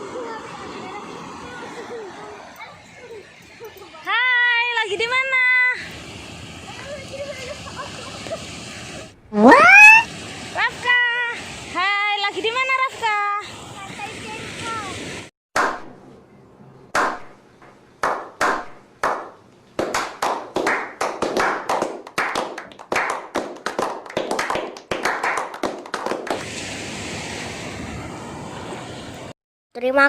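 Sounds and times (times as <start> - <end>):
steady hiss: 0.0 - 9.2, 10.1 - 15.3, 26.3 - 29.3
hand clapping: 18.0 - 26.4.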